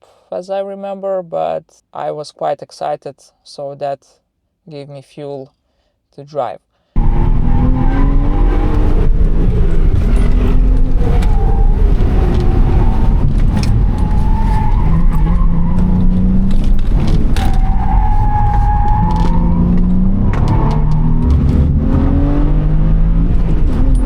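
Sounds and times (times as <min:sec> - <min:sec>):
car engine revving on track: 0:07.0 - 0:24.0.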